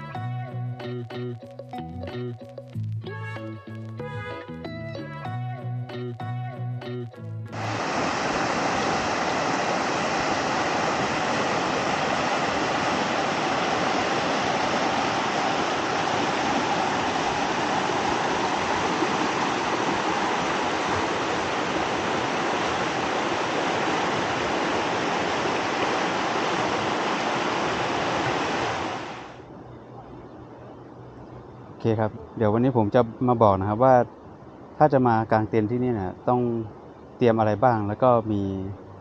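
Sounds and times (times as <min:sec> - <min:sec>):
stream water rushing: 0:07.5 - 0:29.5.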